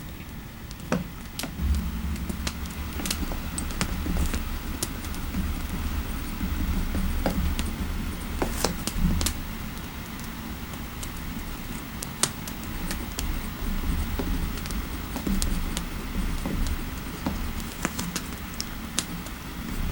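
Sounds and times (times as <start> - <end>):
fire crackling and popping: 0.7 - 19.9
low rumble of fire: 1.2 - 19.9.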